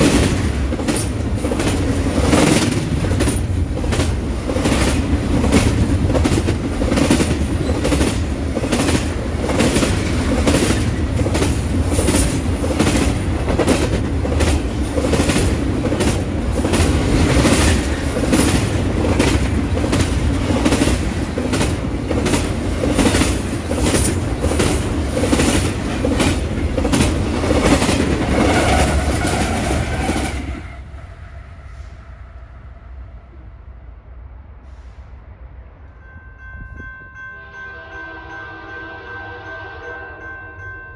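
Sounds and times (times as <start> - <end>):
train wheels clacking: 0.0 - 32.2
freight train rumble: 0.0 - 40.9.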